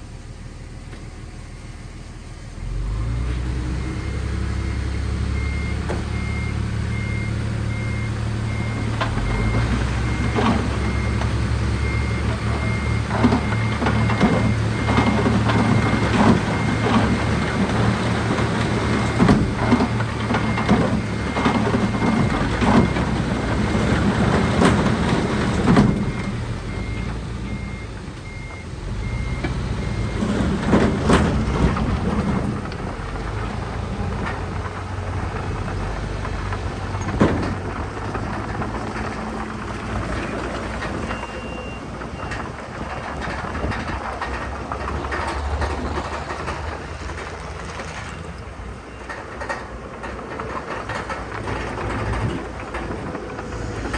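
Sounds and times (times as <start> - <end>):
diesel earthmoving machinery: 0.0 - 53.9
reversing alarm beeping: 3.8 - 32.2, 41.0 - 43.9.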